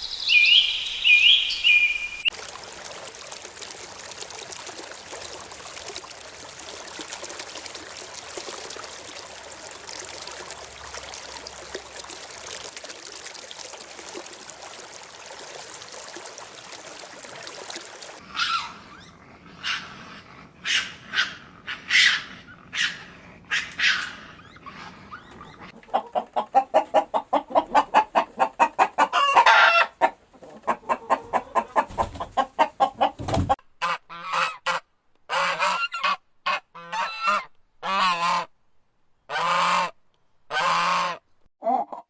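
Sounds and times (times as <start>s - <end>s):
birds clucking: 25.3s - 33.6s
birds honking: 25.4s - 33.6s.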